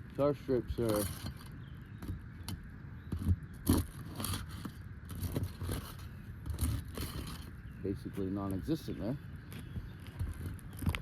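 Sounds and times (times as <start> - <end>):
roof shingles scraping: 3.1 - 7.6.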